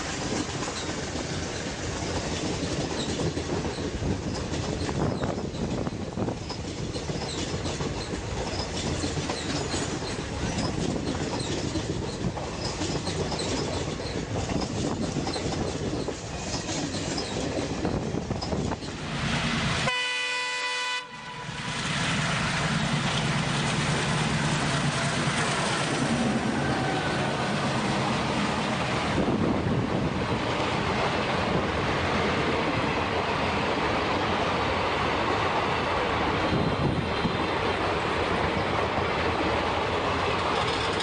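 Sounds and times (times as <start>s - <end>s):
wind noise: 0.0s - 19.9s, 21.6s - 41.0s
train rail rumble: 0.0s - 41.0s
train horn: 19.8s - 21.8s, 26.4s - 27.8s.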